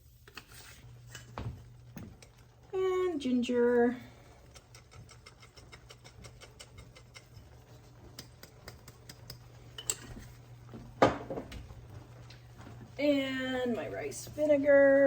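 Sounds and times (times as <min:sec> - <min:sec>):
container set down on counter: 0:11.0 - 0:11.6.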